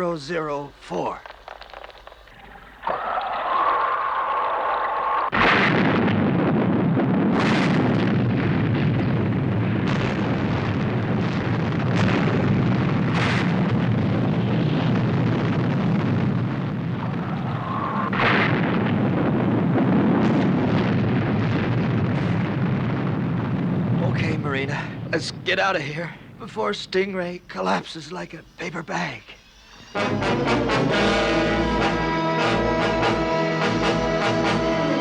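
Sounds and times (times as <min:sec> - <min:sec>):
low rumble of explosions: 0:00.0 - 0:35.0
sharp blasts: 0:05.3 - 0:35.0.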